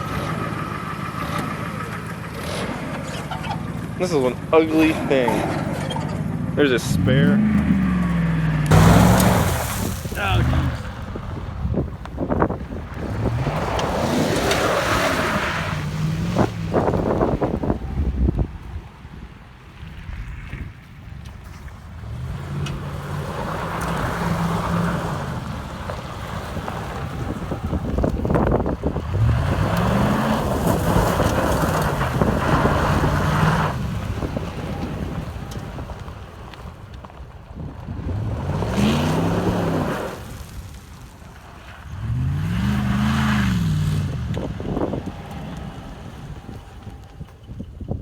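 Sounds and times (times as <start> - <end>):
pickup engine running: 0.0 - 48.0
wind noise on microphone: 8.7 - 22.1, 24.0 - 40.6, 42.5 - 48.0.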